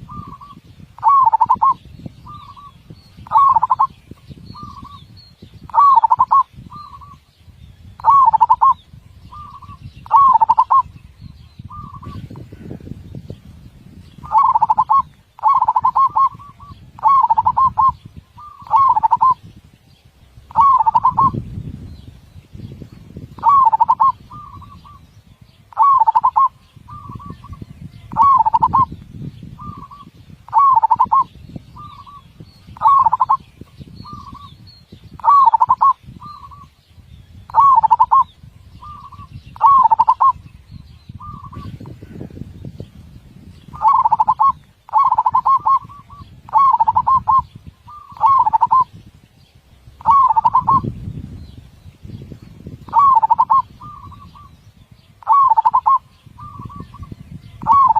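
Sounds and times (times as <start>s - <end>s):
dove cooing: 0.0s - 3.9s, 5.7s - 7.2s, 8.0s - 10.9s, 11.7s - 12.8s, 14.2s - 19.4s, 20.5s - 21.4s, 23.4s - 25.0s, 25.7s - 28.9s, 29.6s - 32.2s, 32.8s - 34.5s, 35.2s - 36.7s, 37.5s - 40.4s, 43.7s - 48.9s, 50.0s - 50.9s, 52.9s - 54.5s, 55.2s - 57.9s.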